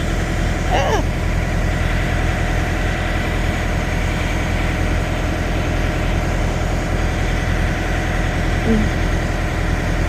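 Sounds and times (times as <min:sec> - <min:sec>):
truck diesel engine idling: 0:00.0 - 0:10.0.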